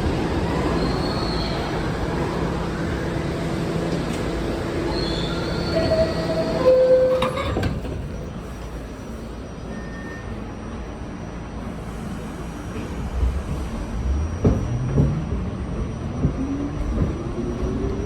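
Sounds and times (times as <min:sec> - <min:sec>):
subway train rumbling: 0:00.0 - 0:18.0
high-pitched wheel squeals: 0:04.9 - 0:07.7.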